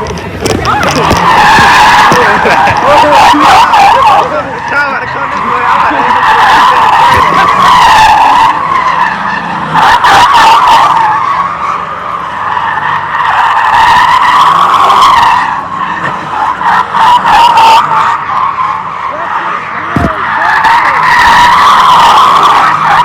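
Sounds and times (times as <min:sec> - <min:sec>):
car tyres squealing: 0:00.0 - 0:23.0.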